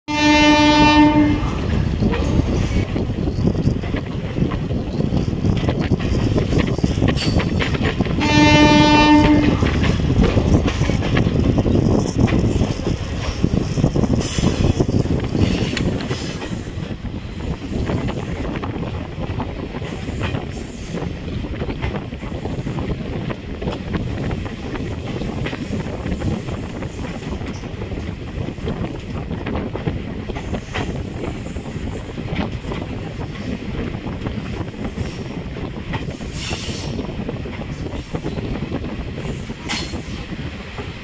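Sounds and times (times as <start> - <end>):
wind: 0.0 - 41.0
locomotive horn: 0.1 - 1.6, 8.2 - 9.8
train wheels rumbling and clacking: 0.1 - 41.0.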